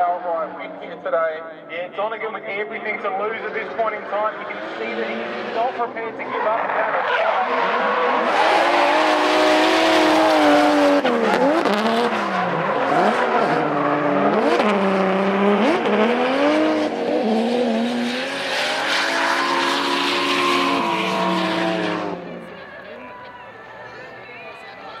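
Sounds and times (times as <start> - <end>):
car engines revving hard: 3.2 - 22.9.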